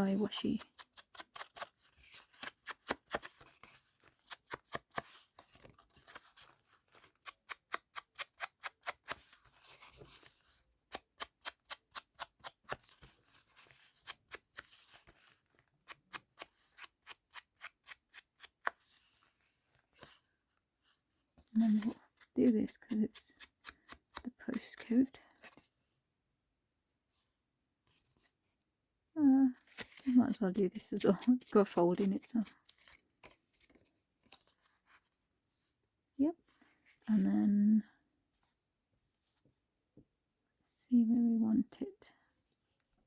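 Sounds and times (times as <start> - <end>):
scissors snipping paper: 6.9 - 9.4.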